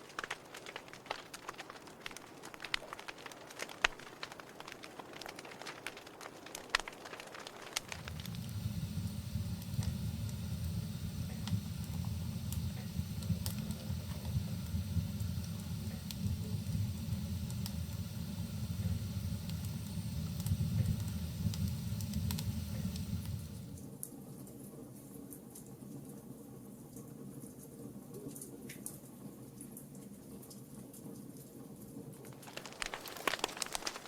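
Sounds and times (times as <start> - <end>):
low rumble of burning: 0.0 - 23.9, 32.3 - 34.0
wood fire crackling and popping: 0.0 - 23.9, 32.2 - 34.0.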